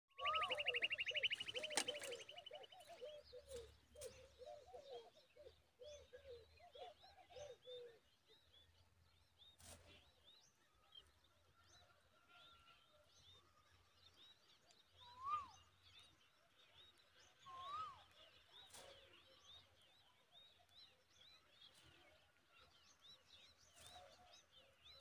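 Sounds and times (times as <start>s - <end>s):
bird trilling: 0.1s - 2.9s
repeated low bird calls: 0.1s - 8.1s
nestlings chirping: 0.2s - 2.8s.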